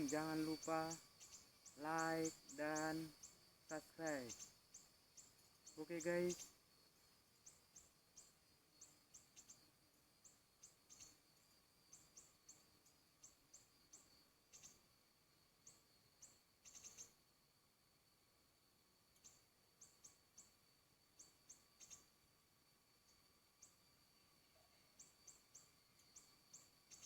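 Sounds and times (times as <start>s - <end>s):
faint high-pitched bird chirps: 0.0s - 6.7s, 7.4s - 14.9s, 15.6s - 17.3s, 19.1s - 22.2s, 24.5s - 27.0s.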